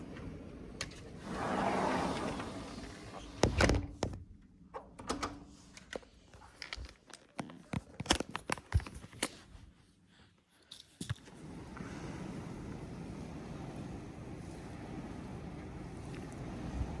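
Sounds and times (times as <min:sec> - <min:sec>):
clicks and knocks of objects handled: 0:04.8 - 0:09.5.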